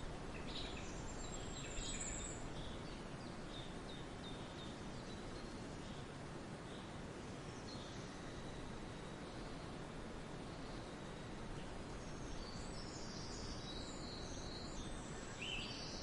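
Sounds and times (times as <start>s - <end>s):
songbirds chirping: 0.0s - 16.0s
steady background hiss: 0.0s - 16.0s.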